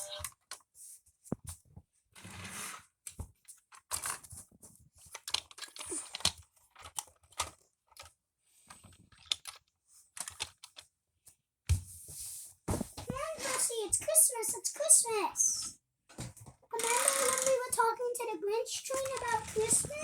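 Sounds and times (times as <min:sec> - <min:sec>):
toy pieces clicking and tapping: 0:16.8 - 0:17.8, 0:18.9 - 0:20.0.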